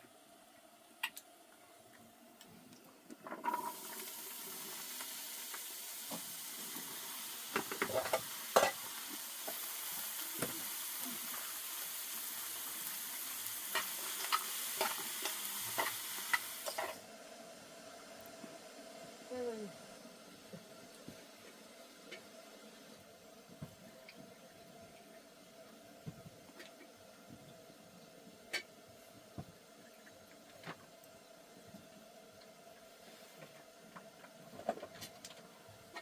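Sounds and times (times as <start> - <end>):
food sizzling in a pan: 3.2 - 22.9.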